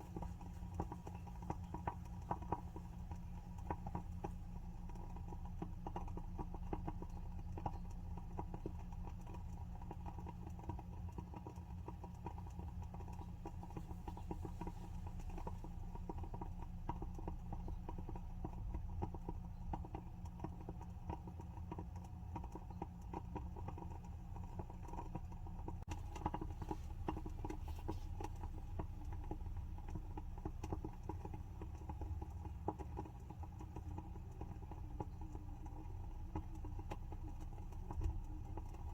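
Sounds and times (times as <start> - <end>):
candle wick crackling: 0.0 - 7.6, 11.6 - 19.0, 25.8 - 38.9.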